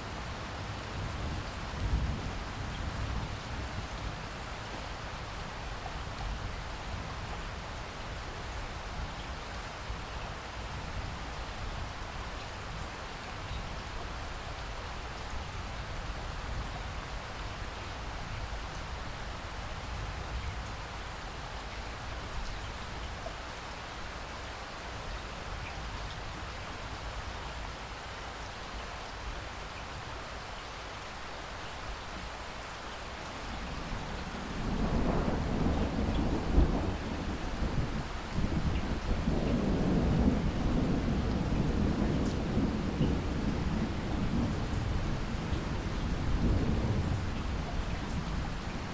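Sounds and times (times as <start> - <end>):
steady rain falling: 0.0 - 48.9
thunder rolling: 33.6 - 47.2.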